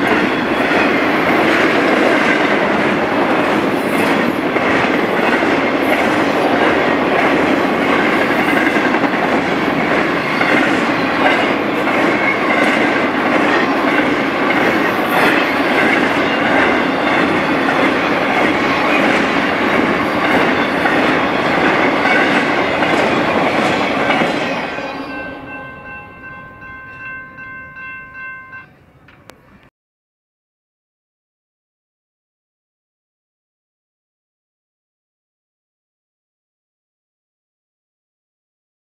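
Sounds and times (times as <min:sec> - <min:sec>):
crossing bell ringing: 0:00.0 - 0:01.6, 0:03.6 - 0:29.6
freight train wheel clatter: 0:00.0 - 0:27.4.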